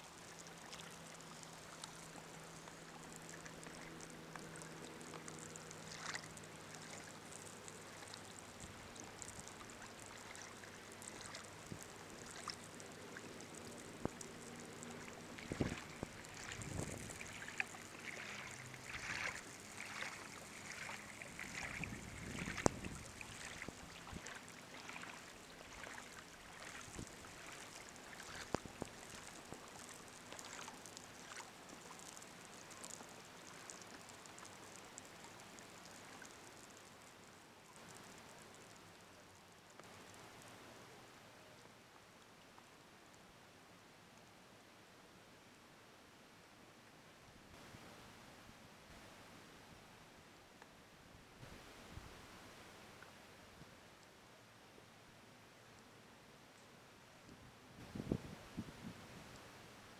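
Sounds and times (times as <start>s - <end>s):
faint low hum: 0.0s - 59.9s
water splashing against kayak: 0.1s - 37.0s.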